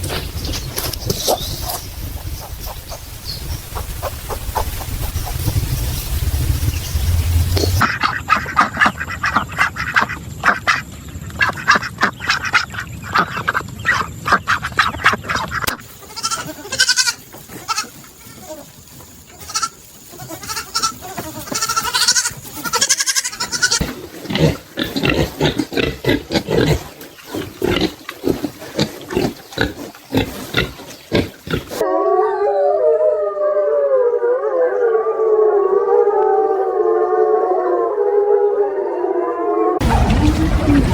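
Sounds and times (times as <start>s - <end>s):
livestock grunting and squealing: 15.3s - 31.9s
long wavering howl: 31.8s - 40.9s.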